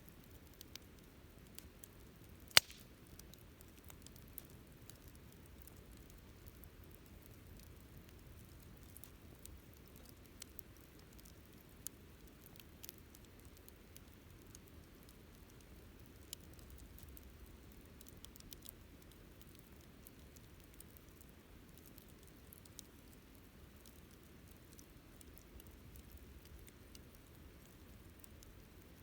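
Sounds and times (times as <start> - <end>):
campfire pops and ticks: 0.0 - 29.0
low steady fire rumble: 0.0 - 29.0.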